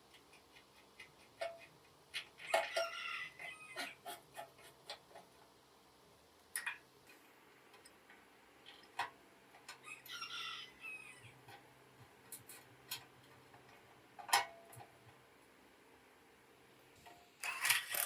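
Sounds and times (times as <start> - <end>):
chicken calling: 2.4 - 4.1, 9.8 - 11.4.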